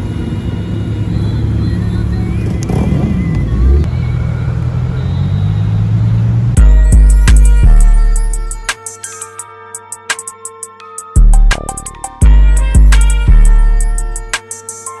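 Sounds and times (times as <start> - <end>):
car engine running: 0.0 - 8.4
loud music with heavy bass: 6.6 - 15.0.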